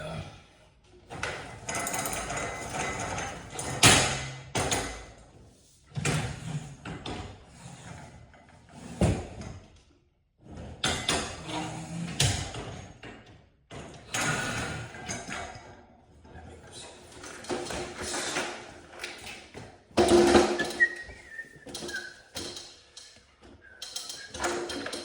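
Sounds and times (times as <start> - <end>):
tools clattering and scraping: 1.1 - 5.3, 12.5 - 25.0.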